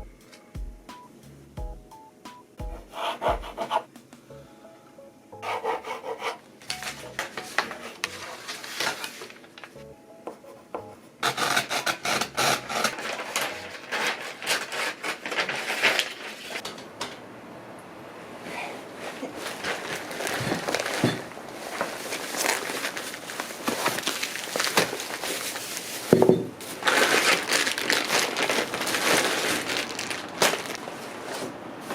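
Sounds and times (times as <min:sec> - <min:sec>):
faint background music: 0:00.0 - 0:14.4.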